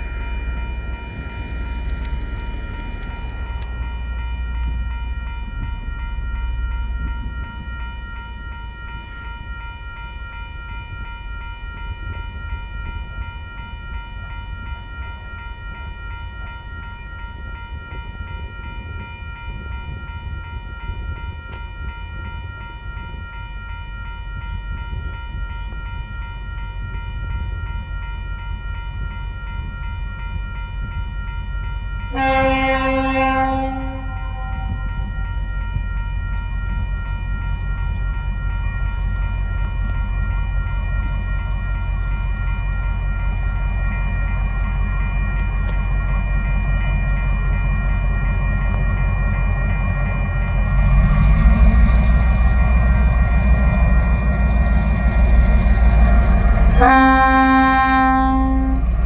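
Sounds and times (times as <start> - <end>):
freight train rumbling by: 0.0 - 59.0
high ringing tone: 0.0 - 59.0
train horn: 32.1 - 35.2, 56.6 - 59.0.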